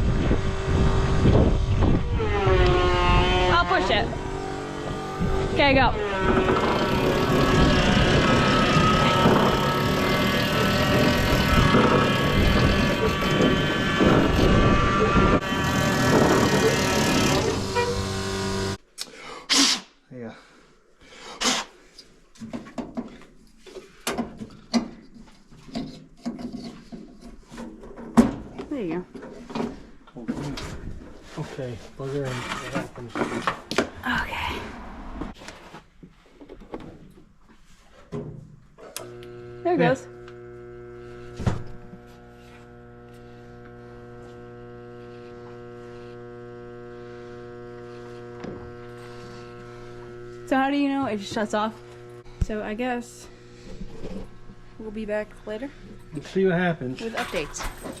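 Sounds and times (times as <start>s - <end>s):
electric feed cart humming: 0.0s - 18.8s, 38.9s - 58.0s.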